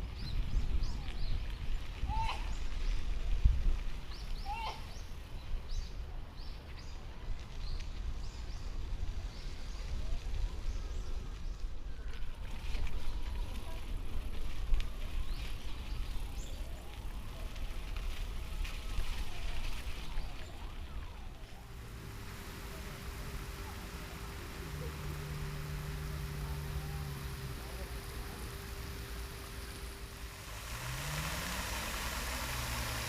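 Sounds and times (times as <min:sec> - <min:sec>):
wind buffeting microphone: 0:00.0 - 0:04.4
tyres hissing on wet path: 0:07.3 - 0:33.0.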